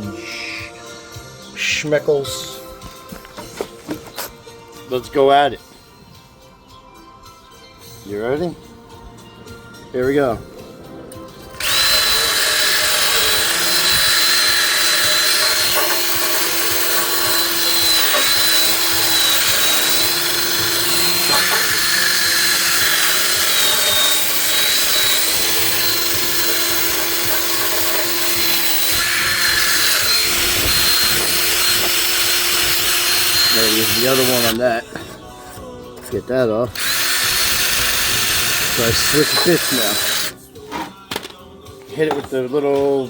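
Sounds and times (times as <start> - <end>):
drill wire brush scrubbing metal: 11.6 - 35.1, 36.8 - 40.4.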